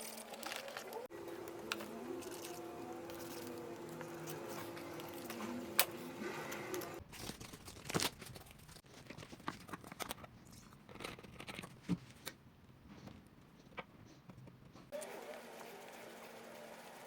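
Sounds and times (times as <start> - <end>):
cardboard and paper crinkling: 0.0 - 10.3.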